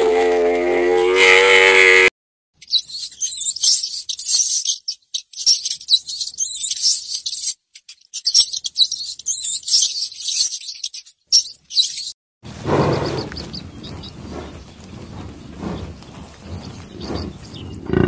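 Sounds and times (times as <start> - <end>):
rats squeaking and chattering: 2.6 - 12.2.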